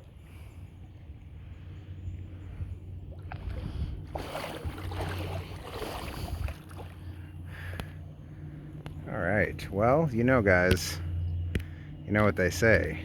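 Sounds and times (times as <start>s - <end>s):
wind rumbling on microphone: 0.0s - 7.7s
shallow water splashing: 3.0s - 7.8s.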